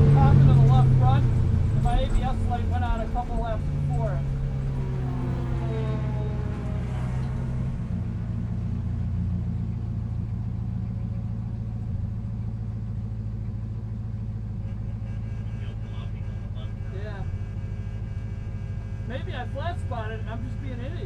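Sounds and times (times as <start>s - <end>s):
car engine drone from inside cabin: 0.0s - 21.0s.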